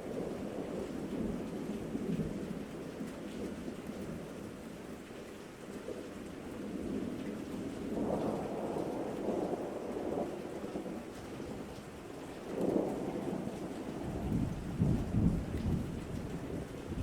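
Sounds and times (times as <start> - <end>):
steady rain: 0.0 - 17.0
rolling thunder rumble: 12.5 - 17.0.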